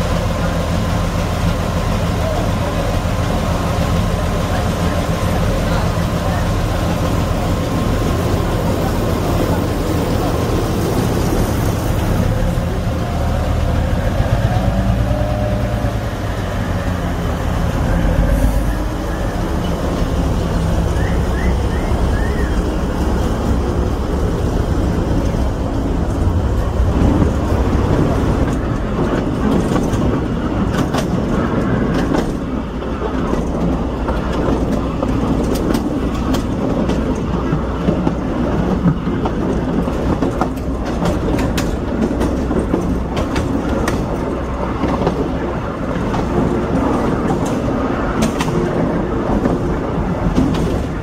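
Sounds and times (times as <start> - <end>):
diesel locomotive engine running: 0.0 - 51.0
train rumbling along track: 0.0 - 51.0
wheels clicking over rail joints: 17.9 - 51.0.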